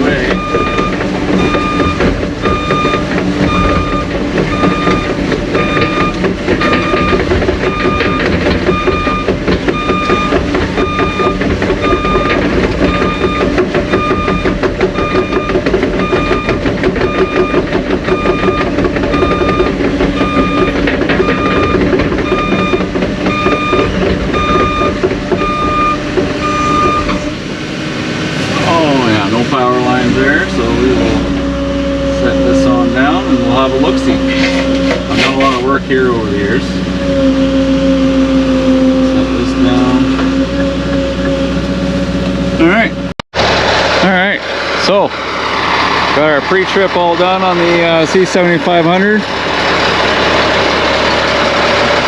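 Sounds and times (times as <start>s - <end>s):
machine rattling: 0.0s - 27.3s
reversing alarm beeping: 0.0s - 27.3s
diesel engine running: 0.0s - 52.0s.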